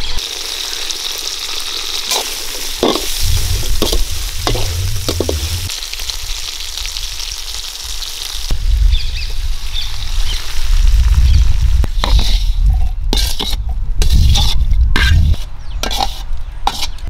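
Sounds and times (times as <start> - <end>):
food sizzling in a pan: 0.0 - 12.5
metal ladle scraping a pan: 12.0 - 17.0.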